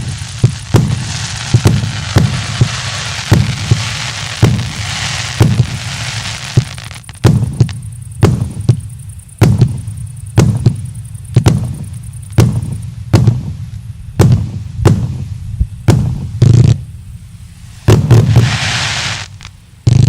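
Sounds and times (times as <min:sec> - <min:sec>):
fireworks firing with booming rumble: 0:00.0 - 0:20.0.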